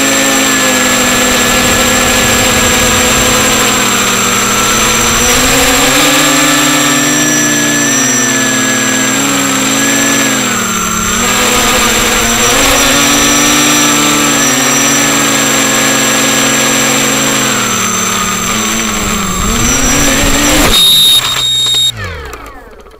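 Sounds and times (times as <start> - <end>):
loud burst of noise: 0.0 - 8.8, 9.8 - 15.1
quadcopter motors whining: 0.0 - 22.9.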